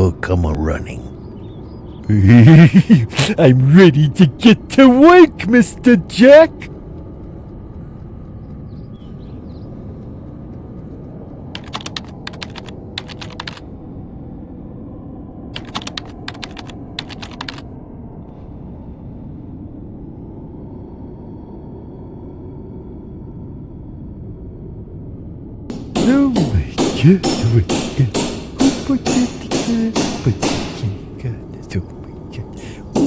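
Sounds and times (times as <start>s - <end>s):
low background hum: 0.0s - 33.0s
typing on computer keyboard: 11.5s - 13.6s, 15.6s - 17.6s.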